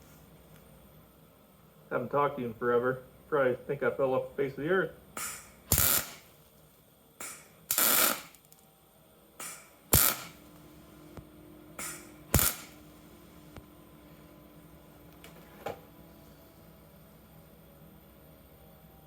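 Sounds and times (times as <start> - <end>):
faint steady hum: 0.0 - 19.0
welder crackling bursts: 4.6 - 6.6, 7.2 - 8.6, 9.4 - 10.8, 11.8 - 13.1.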